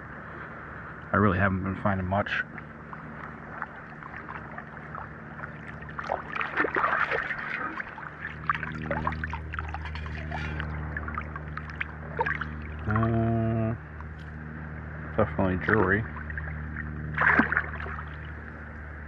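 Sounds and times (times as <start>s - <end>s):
low engine drone: 0.0s - 19.0s
water sloshing and splashing: 2.4s - 13.2s, 15.2s - 19.0s.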